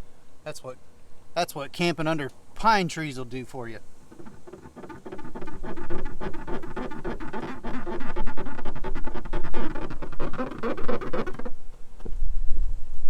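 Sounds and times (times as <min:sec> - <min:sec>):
cloth squeaking on glossy paint: 0:04.1 - 0:12.1.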